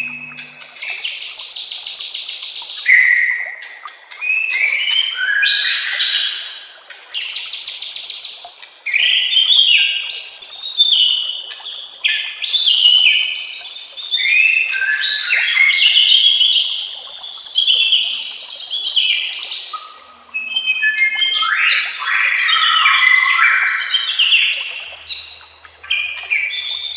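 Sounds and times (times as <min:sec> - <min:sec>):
bird singing whistles and trills: 0:00.0 - 0:06.5, 0:07.2 - 0:26.9.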